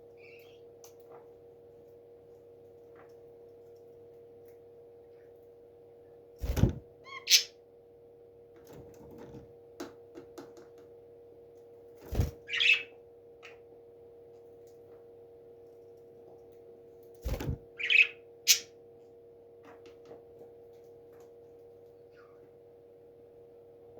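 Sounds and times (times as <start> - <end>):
electrical hum: 0.0 - 23.9
bird chirp: 0.1 - 0.7, 7.1 - 7.5, 12.5 - 13.6, 17.8 - 18.7
parrot squawking: 7.1 - 7.5, 12.5 - 12.9, 17.8 - 18.7.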